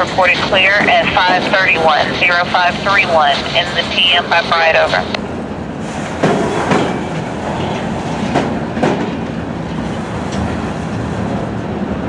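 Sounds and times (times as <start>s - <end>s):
steel wheels rumbling on rail: 0.0s - 12.0s
train wheel clacks: 5.8s - 11.8s.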